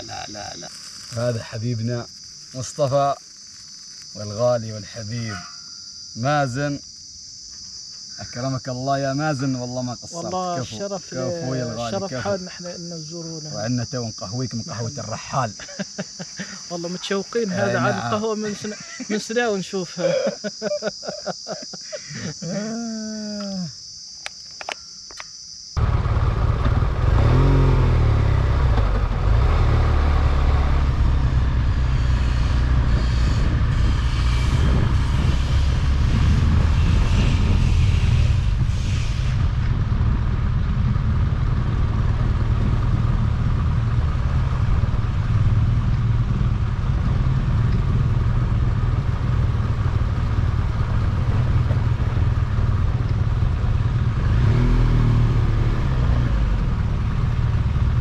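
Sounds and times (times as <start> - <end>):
car engine and road noise: 25.8 - 58.0.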